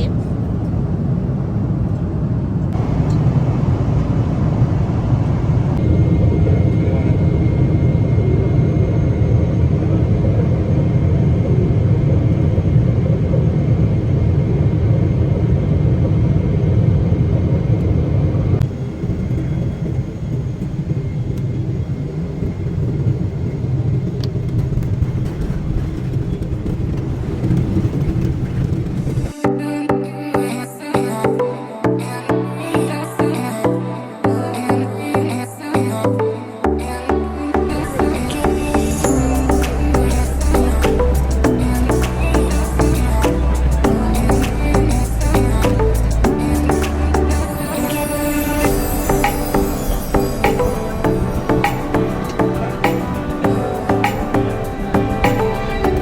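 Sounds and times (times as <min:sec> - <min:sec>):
vehicle rumble: 0:00.0 - 0:29.4, 0:37.7 - 0:56.0.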